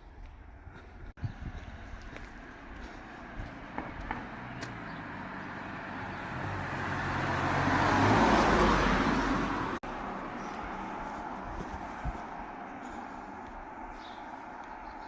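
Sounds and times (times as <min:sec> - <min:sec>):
traffic noise: 0:00.0 - 0:15.0
car passing by: 0:03.0 - 0:12.7.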